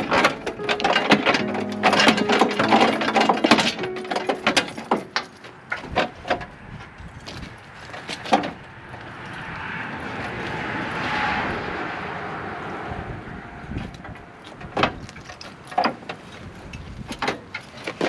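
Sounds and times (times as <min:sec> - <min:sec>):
metal knocks: 0:00.0 - 0:06.5.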